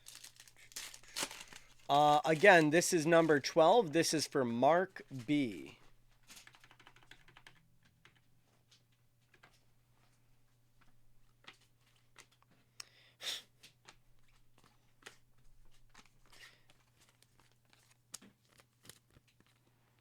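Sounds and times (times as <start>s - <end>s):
pack wrapper tearing and crinkling: 0.0s - 2.9s
cards clicking and rustling: 0.0s - 3.6s, 13.8s - 19.7s.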